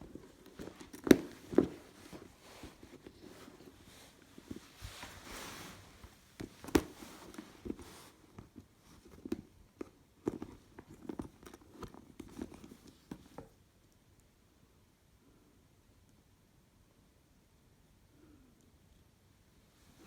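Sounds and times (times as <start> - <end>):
handbag rustling: 0.0 - 9.3.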